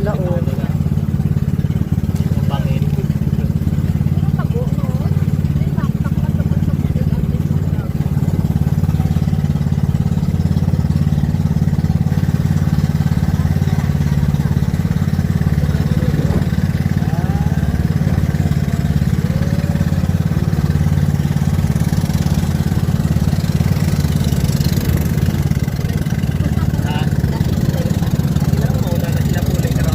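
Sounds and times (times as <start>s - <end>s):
boat engine running steadily: 0.0s - 29.9s.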